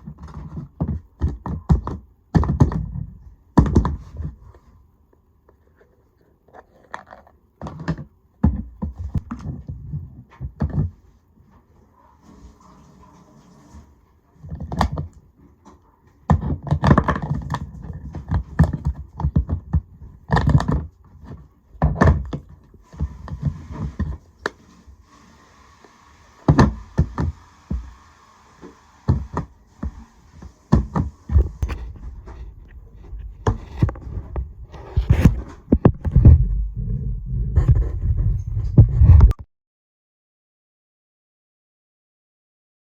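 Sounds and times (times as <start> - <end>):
objects knocking on hard surface: 30.7 - 36.6.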